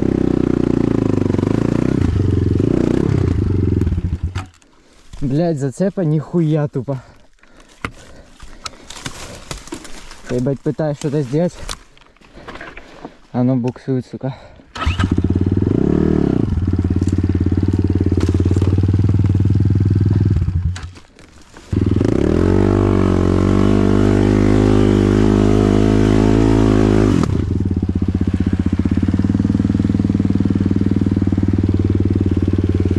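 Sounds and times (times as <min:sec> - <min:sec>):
motorbike engine revving and idling: 0:00.0 - 0:04.6, 0:14.8 - 0:21.0, 0:21.6 - 0:32.9.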